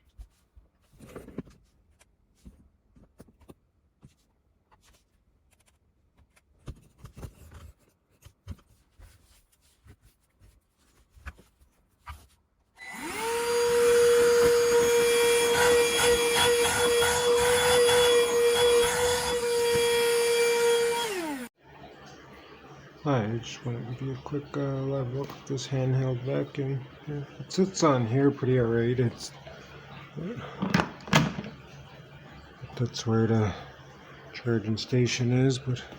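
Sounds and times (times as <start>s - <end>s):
handheld vacuum motor whine: 12.8s - 21.6s
handling clicks and knocks: 30.6s - 31.6s.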